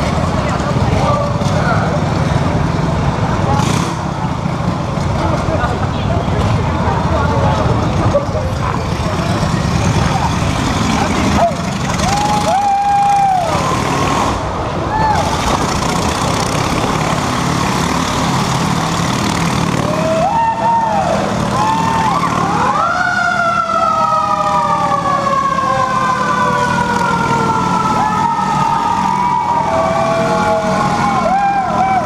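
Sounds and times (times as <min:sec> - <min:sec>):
motorcycle engine running: 0:00.0 - 0:14.6, 0:15.2 - 0:20.2
siren whooping: 0:19.8 - 0:32.0.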